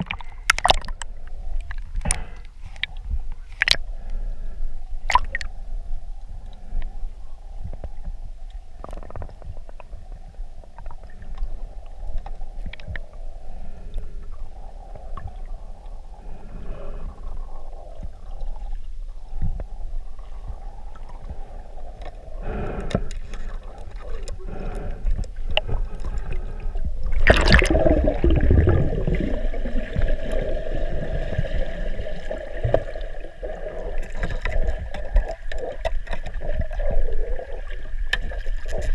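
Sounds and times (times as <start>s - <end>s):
rush of bubbles: 0.0s - 1.0s, 27.1s - 38.9s
underwater bubbling: 0.0s - 38.9s.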